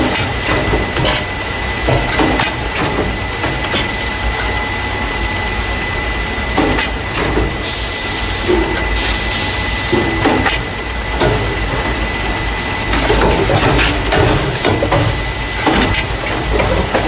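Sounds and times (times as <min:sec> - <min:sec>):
clacking knocks: 0:00.0 - 0:04.5
machine hum with high whine: 0:00.0 - 0:17.0.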